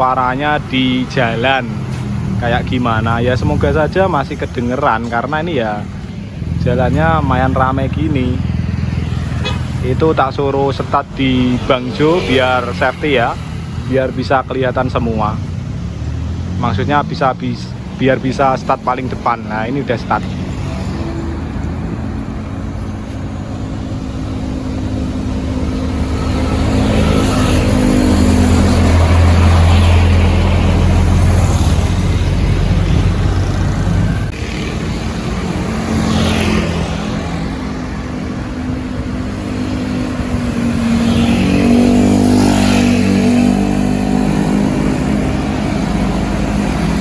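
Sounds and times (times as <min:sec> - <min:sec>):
road traffic: 0:00.0 - 0:47.0
scooter engine accelerating: 0:20.2 - 0:47.0.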